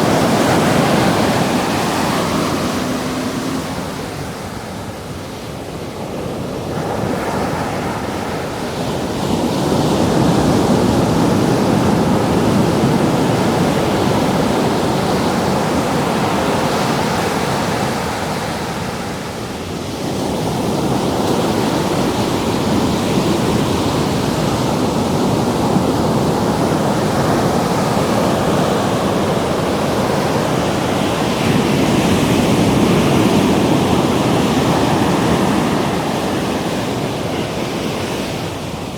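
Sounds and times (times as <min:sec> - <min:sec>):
ocean surf rushing: 0:00.0 - 0:19.2, 0:20.0 - 0:38.9
wind on microphone: 0:00.0 - 0:19.2.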